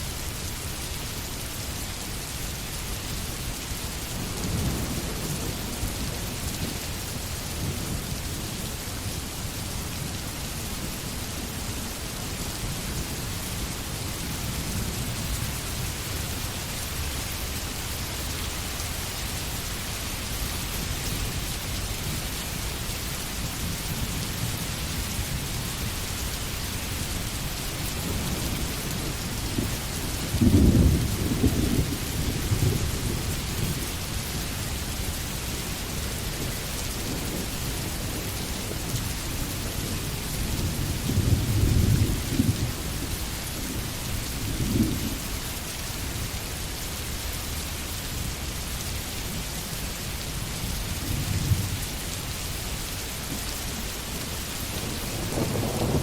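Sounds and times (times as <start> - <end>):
steady rain falling: 0.0 - 56.0
thunder rumbling: 27.9 - 33.8, 54.8 - 56.0.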